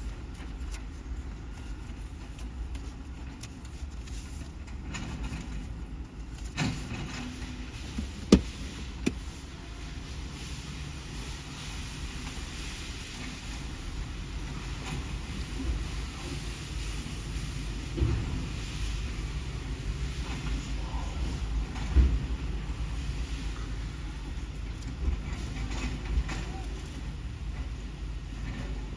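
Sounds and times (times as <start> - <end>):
sharp knocks and bang: 18.0 - 18.5.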